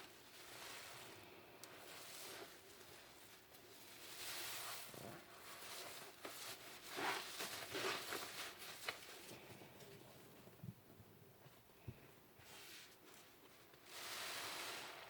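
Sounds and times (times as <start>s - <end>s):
sponge squishing in soapy water: 0.0s - 9.3s, 12.5s - 15.0s.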